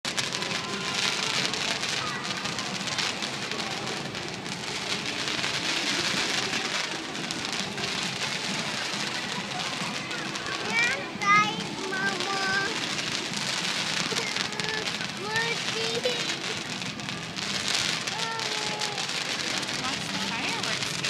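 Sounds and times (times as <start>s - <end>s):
fireworks crackling: 0.0s - 21.0s.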